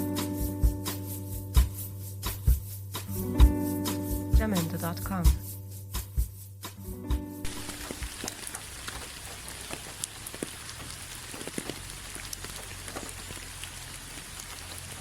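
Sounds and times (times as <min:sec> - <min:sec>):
rain hissing: 0:07.4 - 0:15.0
raindrops ticking: 0:07.4 - 0:15.0.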